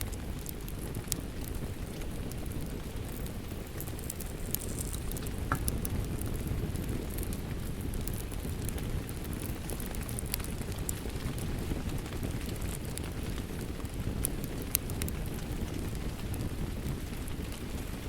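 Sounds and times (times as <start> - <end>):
fire crackling and popping: 0.0 - 18.0.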